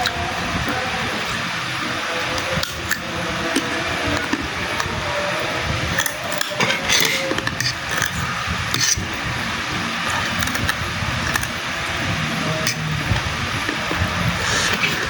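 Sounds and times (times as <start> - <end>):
steady background hum: 0.0 - 15.0
slurping and smacking: 12.2 - 15.0.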